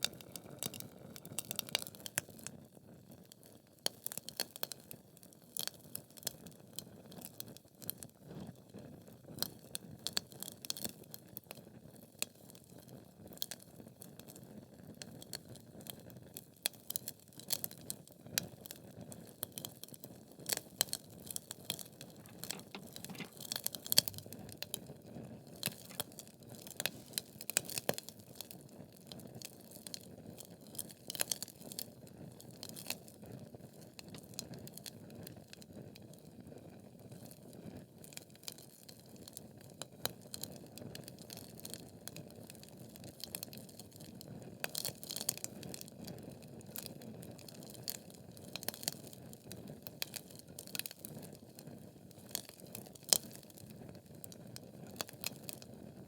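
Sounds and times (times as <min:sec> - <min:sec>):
wood fire crackling and popping: 0:22.2 - 0:24.6.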